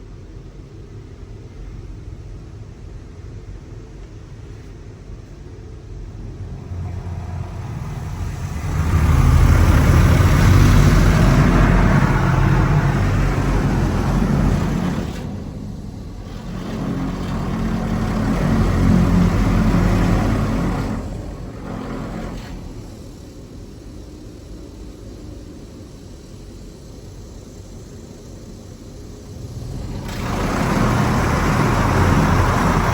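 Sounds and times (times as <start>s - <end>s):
car wash rushing noise: 5.9s - 32.9s.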